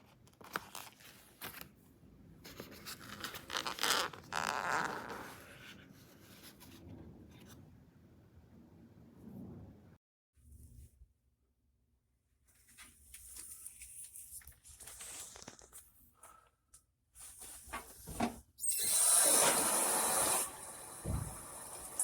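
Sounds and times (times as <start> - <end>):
shower water spraying: 18.8 - 22.0.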